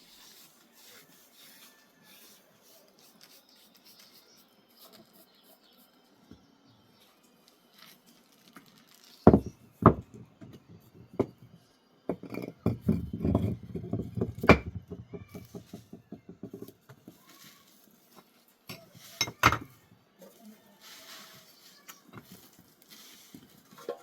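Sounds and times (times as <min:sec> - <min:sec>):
hard objects knocking and clinking: 0:09.2 - 0:17.2, 0:18.7 - 0:19.8.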